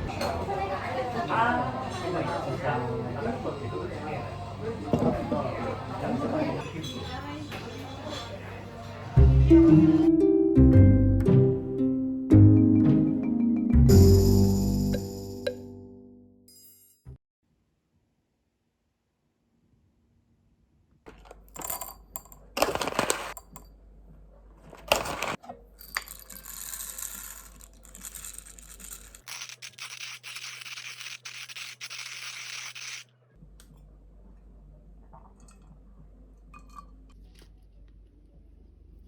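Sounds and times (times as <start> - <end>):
scratchy rubbing: 26.8 - 33.0.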